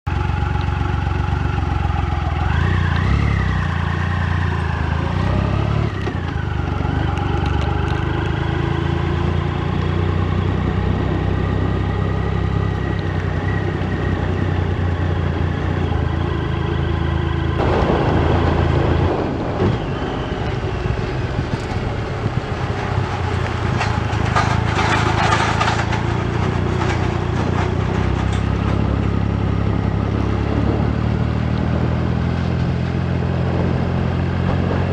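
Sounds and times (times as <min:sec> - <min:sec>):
motorcycle engine running: 0:00.1 - 0:34.9
wind rush: 0:17.6 - 0:24.9, 0:28.6 - 0:34.9.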